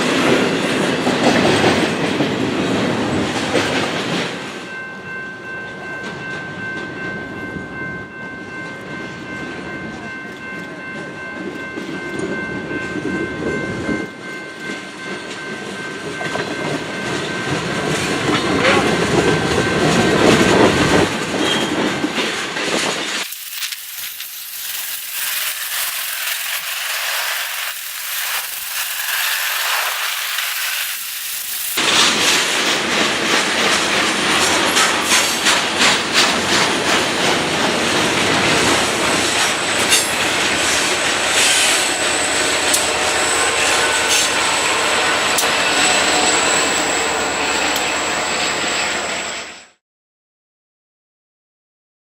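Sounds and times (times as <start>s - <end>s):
clickety-clack of wheels: 0.0s - 4.4s, 14.7s - 23.3s, 31.8s - 42.9s
railroad cars rolling past: 0.0s - 49.8s
high-pitched squeal: 23.2s - 32.1s, 38.7s - 49.8s.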